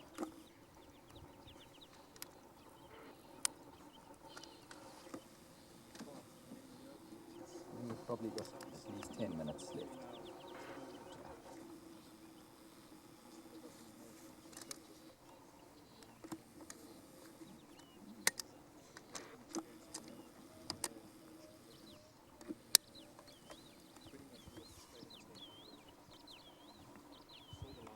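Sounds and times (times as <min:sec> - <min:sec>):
sharp clicks: 0:00.0 - 0:06.6, 0:07.3 - 0:11.6, 0:14.3 - 0:24.7
faint steady hum: 0:00.0 - 0:27.9.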